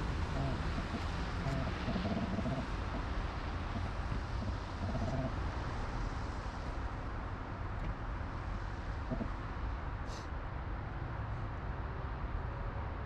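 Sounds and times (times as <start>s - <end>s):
wind on microphone: 0.0s - 6.6s
bicycle road noise: 0.0s - 10.1s.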